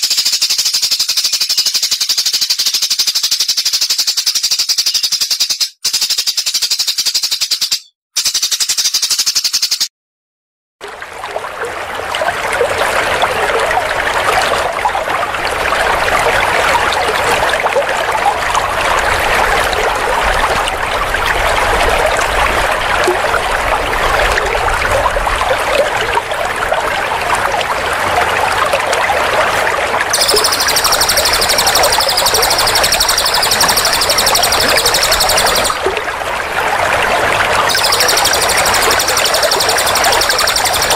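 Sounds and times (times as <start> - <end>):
high rapid bird trill: 30.1 - 35.9, 37.7 - 40.9
songbirds chattering: 30.2 - 35.8, 37.7 - 40.9.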